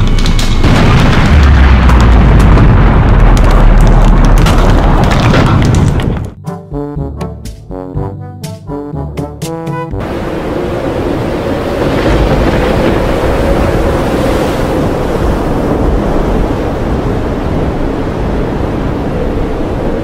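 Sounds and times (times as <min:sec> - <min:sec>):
brassy music cue: 0:06.4 - 0:10.0
loud rushing wind: 0:10.0 - 0:20.0.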